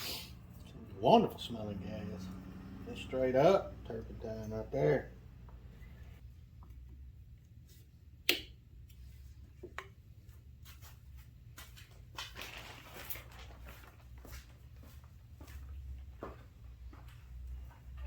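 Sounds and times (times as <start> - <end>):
low steady hum: 0.0 - 10.7.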